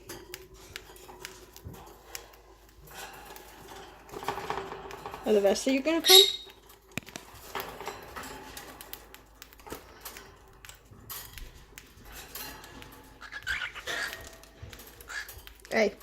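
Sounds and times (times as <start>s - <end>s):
birds pecking clicks: 0.0s - 16.0s
bird calls: 13.2s - 15.5s.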